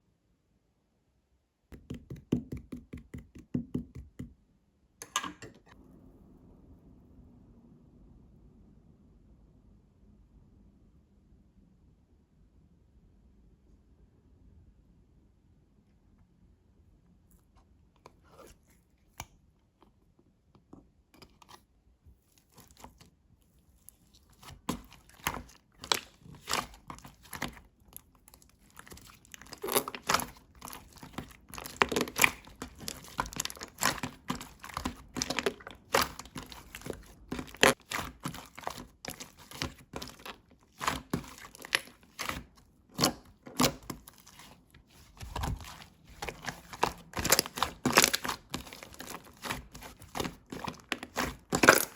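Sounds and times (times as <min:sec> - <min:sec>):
slime crackling and popping: 0:24.5 - 0:51.9.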